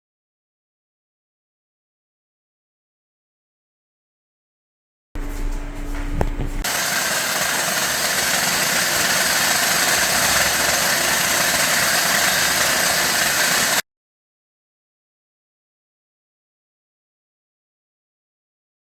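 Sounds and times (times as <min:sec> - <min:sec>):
power tool whirring: 0:05.2 - 0:13.8.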